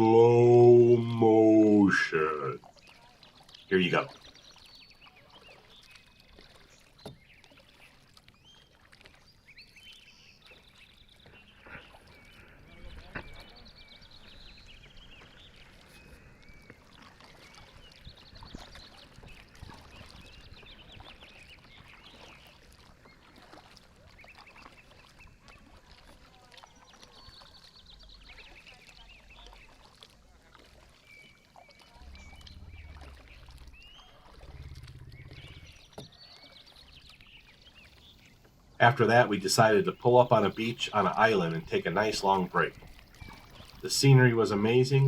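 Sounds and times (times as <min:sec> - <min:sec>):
low rumbles: 0:31.9 - 0:36.0.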